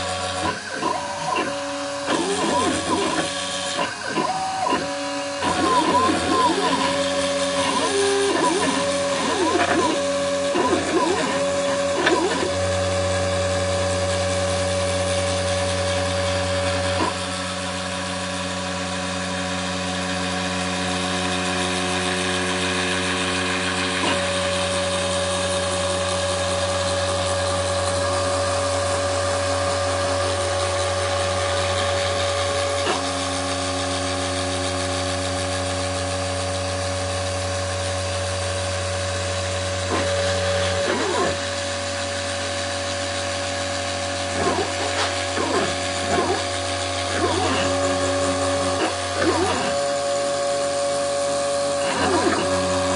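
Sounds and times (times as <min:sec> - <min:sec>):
router spindle cutting hiss: 0:00.0 - 0:52.9
stepper motor tones: 0:00.0 - 0:52.9.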